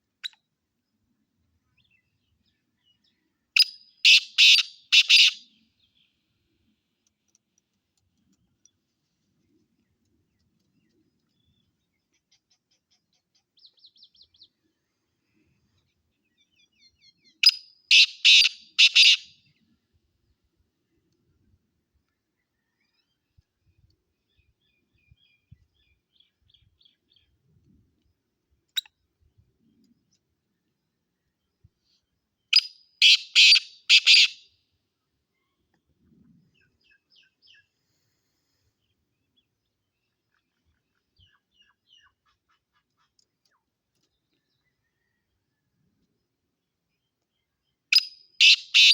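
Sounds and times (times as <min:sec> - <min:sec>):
bird chirping: 0:01.6 - 0:06.2, 0:08.6 - 0:15.0, 0:15.7 - 0:19.7, 0:30.1 - 0:34.5, 0:38.8 - 0:45.4, 0:46.9 - 0:48.9
bird rasping call: 0:04.0 - 0:05.4, 0:17.9 - 0:19.2, 0:33.0 - 0:34.4, 0:48.4 - 0:48.9.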